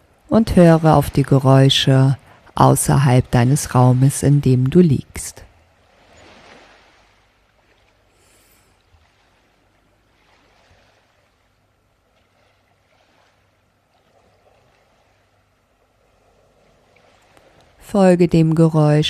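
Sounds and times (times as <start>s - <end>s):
low steady hum: 0.0s - 6.1s
soft rushing of sea waves: 0.0s - 19.0s.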